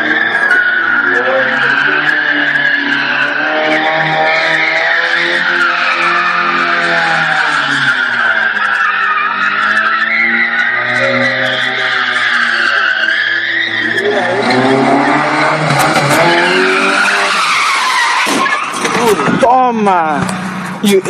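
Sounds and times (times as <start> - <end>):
car tyres squealing: 0.0 - 20.8
car engine revving: 0.0 - 21.0.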